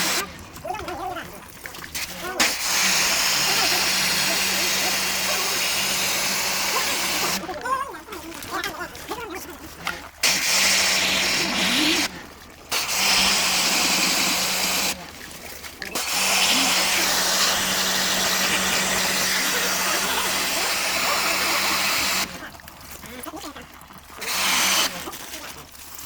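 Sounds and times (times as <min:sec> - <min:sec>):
pressure washer spraying water: 0:00.0 - 0:00.4, 0:02.0 - 0:07.4, 0:10.2 - 0:22.4, 0:24.2 - 0:25.4
pump motor humming: 0:00.0 - 0:26.0.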